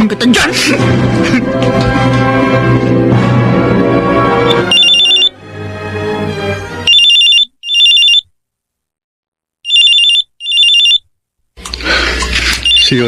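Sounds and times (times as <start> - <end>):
music: 0.0 - 6.9
telephone ringing: 4.5 - 5.4, 6.9 - 8.3, 9.6 - 11.1, 12.6 - 13.0.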